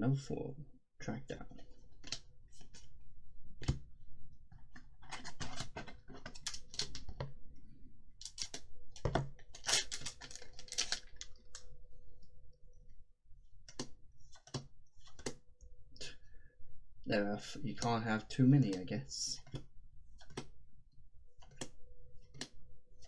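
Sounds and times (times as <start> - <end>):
trading cards clicking and snapping: 4.7 - 7.3, 8.2 - 11.6, 13.7 - 15.4, 19.4 - 20.6, 21.4 - 22.6.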